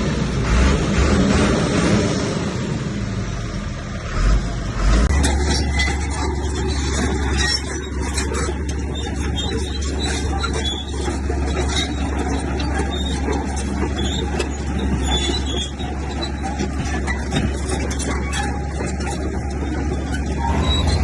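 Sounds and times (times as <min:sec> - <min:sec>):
heavy diesel machinery drone: 0:00.0 - 0:21.0
metallic clanks: 0:05.1 - 0:21.0.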